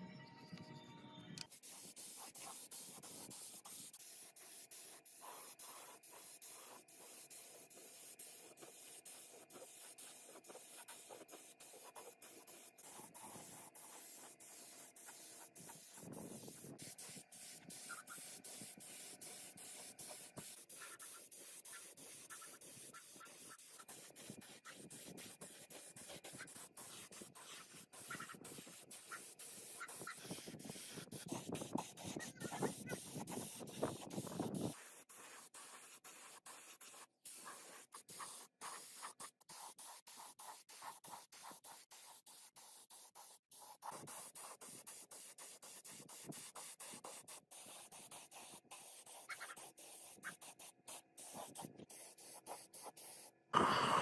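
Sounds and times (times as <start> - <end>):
scratchy rubbing: 9.3 - 36.0
high hiss: 53.6 - 54.0.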